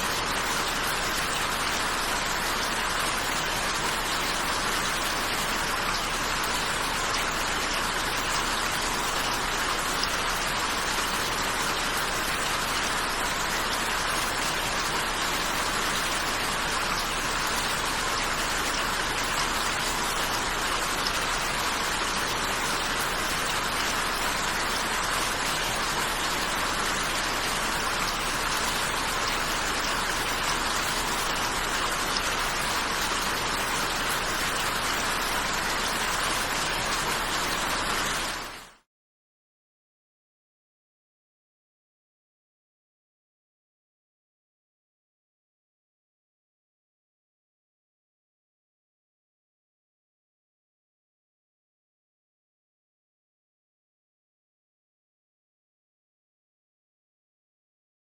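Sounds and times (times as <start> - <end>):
steady rain: 0.0 - 38.8.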